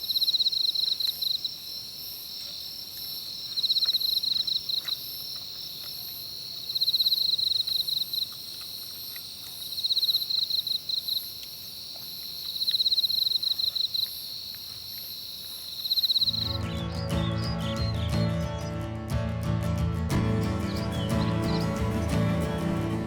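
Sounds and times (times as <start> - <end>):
high-pitched insect trill: 0.0 - 18.0
insect chirping in pulsing bursts: 15.1 - 23.0.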